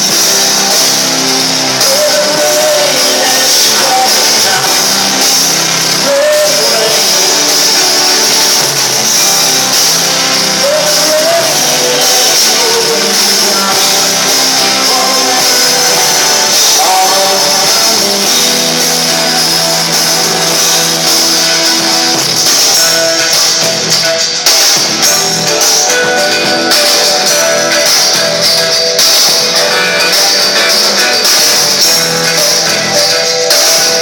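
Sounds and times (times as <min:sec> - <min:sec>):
live rock band with singing: 0:00.0 - 0:34.0.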